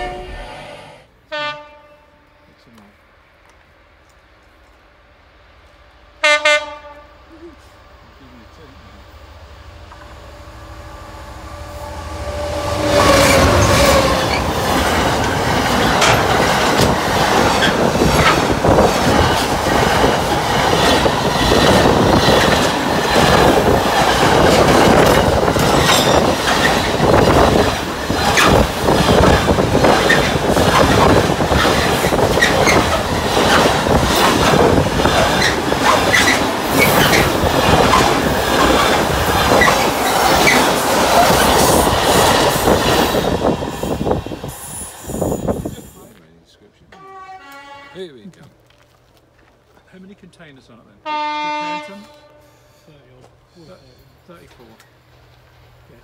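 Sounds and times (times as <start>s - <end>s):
diesel locomotive passing: 0.0s - 48.4s
freight wagons rumbling: 7.3s - 44.5s.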